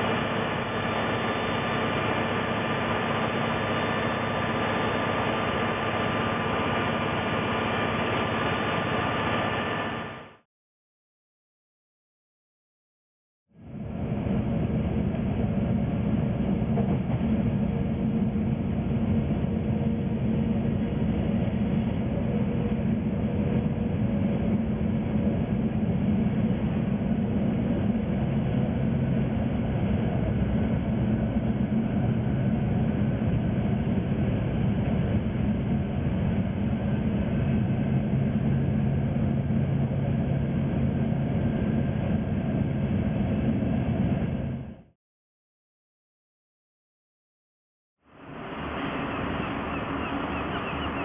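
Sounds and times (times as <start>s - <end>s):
diesel engine drone: 0.0s - 10.4s, 13.5s - 44.9s, 48.0s - 51.0s
train wheels on rails: 14.1s - 44.6s.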